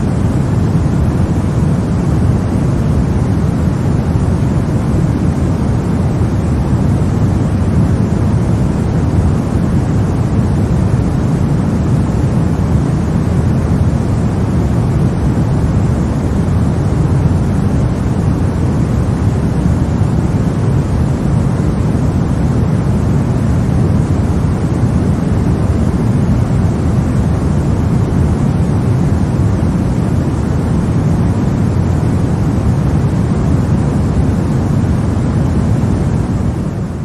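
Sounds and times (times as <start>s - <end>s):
deep rumbling hiss: 0.0s - 37.0s.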